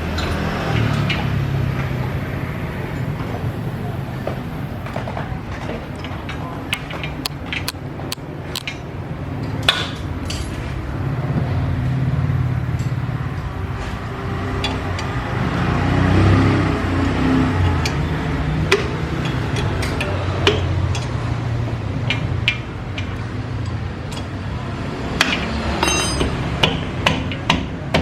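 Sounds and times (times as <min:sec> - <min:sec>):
metal ringing rattle: 0:25.8 - 0:26.5
metal tools clinking on steel: 0:25.8 - 0:26.5.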